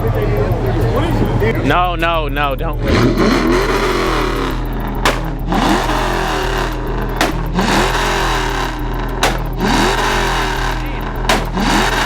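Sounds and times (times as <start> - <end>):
car engine revving in blips: 0.0 - 12.0
sharp cracks: 2.8 - 12.0.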